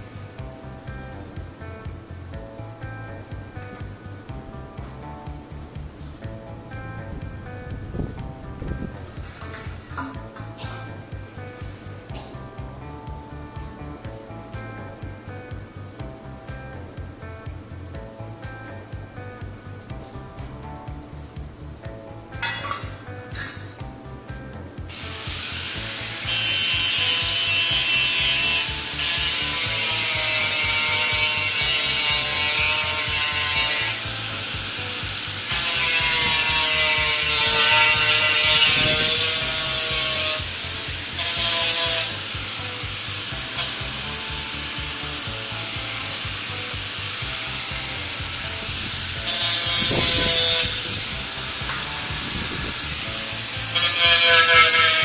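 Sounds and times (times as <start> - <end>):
power tool grinding metal: 8.2 - 14.4, 22.3 - 23.8, 24.9 - 55.0.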